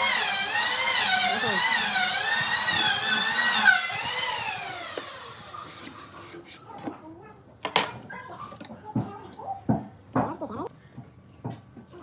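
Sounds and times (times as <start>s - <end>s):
power drill whining: 0.0s - 6.0s.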